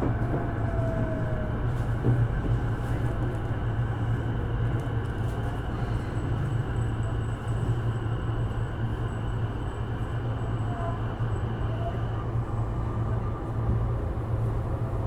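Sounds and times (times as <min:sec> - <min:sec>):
train wheels rumbling on rails: 0:00.0 - 0:09.0.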